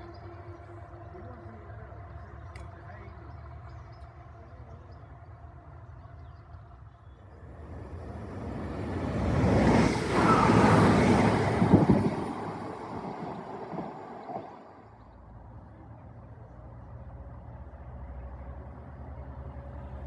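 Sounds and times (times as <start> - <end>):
train passing at speed: 7.4 - 15.0.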